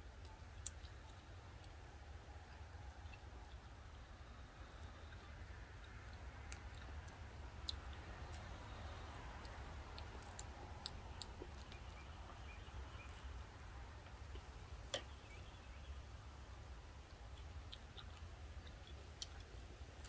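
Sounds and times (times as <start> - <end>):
low steady hum: 0.0 - 20.0
person chewing wetly: 4.7 - 12.4, 17.1 - 20.0.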